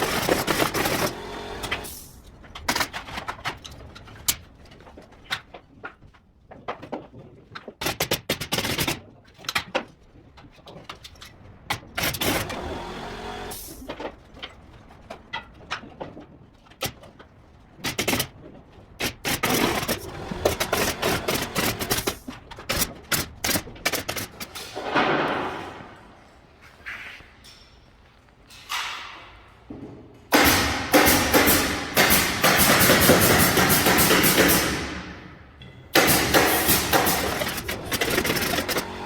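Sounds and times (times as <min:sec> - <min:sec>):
tools and timber knocking: 0:28.7 - 0:39.0.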